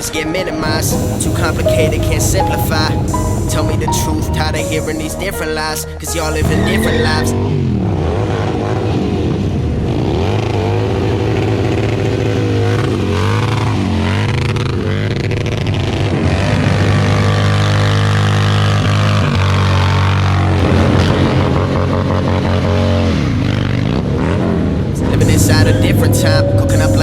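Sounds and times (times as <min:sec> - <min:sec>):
motorcycle engine revving: 0:06.4 - 0:27.0.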